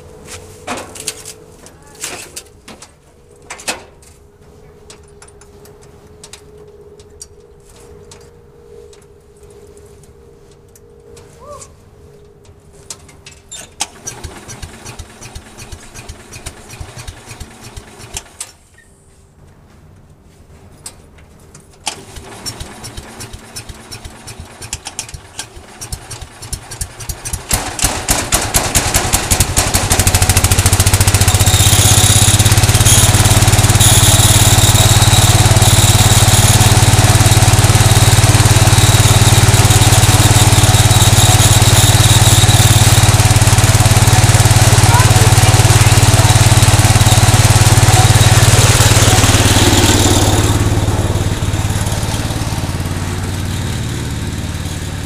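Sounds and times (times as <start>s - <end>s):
garden tractor engine running: 12.8s - 18.7s, 21.7s - 55.0s
garden tractor engine cranking: 13.0s - 18.8s, 21.7s - 55.0s.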